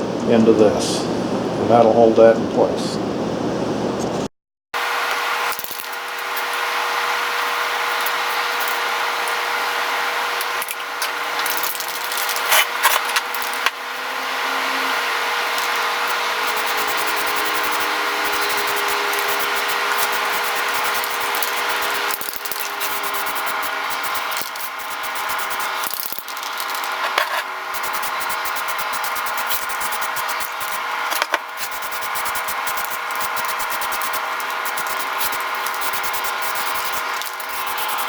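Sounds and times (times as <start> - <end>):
drill press cutting steel: 4.9 - 38.0
scattered clicks: 15.5 - 27.0, 27.8 - 38.0.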